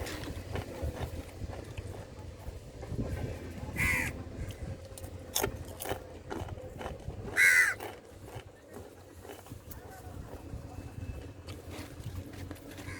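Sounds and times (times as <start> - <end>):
crow cawing: 3.8 - 4.2, 7.4 - 7.8.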